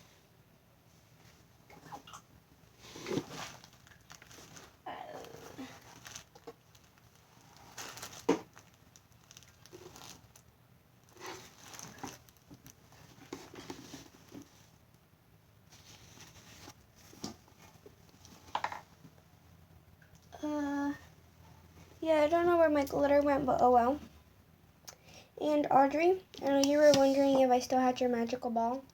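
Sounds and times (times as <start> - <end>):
slime putty crinkling and crackling: 3.0 - 12.8.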